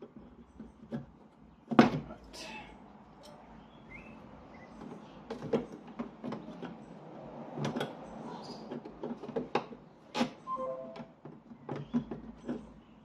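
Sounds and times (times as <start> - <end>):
tools clicking and knocking on metal: 4.8 - 10.4
brief squeak: 10.3 - 11.1.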